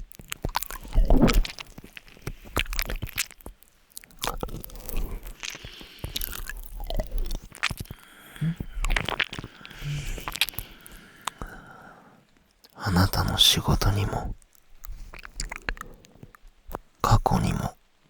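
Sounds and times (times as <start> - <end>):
wet kissing and lip smacks: 0.2 - 11.7, 14.5 - 16.8.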